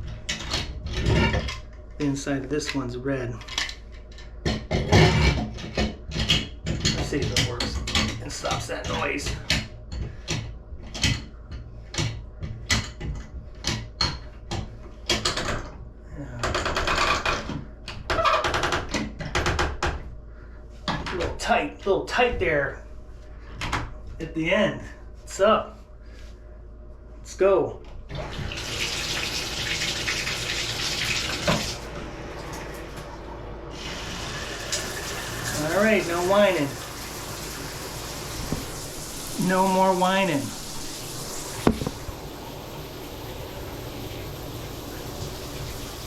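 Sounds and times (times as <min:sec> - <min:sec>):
shower spray rushing: 0:33.8 - 0:46.0.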